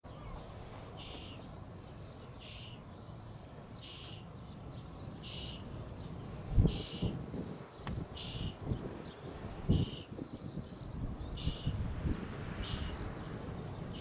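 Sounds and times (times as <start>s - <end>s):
wind rumbling on microphone: 5.0s - 14.0s
gust buffeting microphone: 6.1s - 14.0s.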